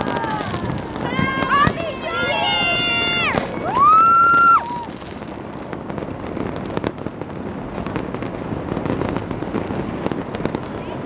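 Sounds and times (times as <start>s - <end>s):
fireworks and firecrackers popping: 0.0s - 11.0s.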